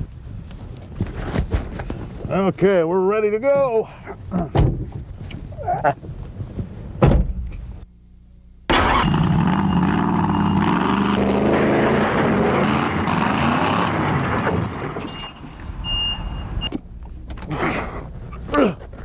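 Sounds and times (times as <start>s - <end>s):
monster truck engine revving: 8.7s - 16.6s.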